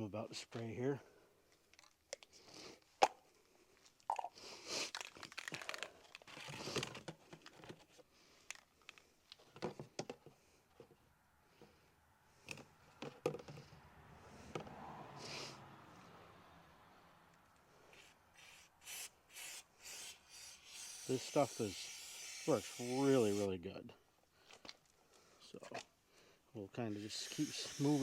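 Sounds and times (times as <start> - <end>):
can and chain clicking: 4.1 - 6.9
aerosol spray hissing: 18.4 - 23.5, 27.0 - 28.0.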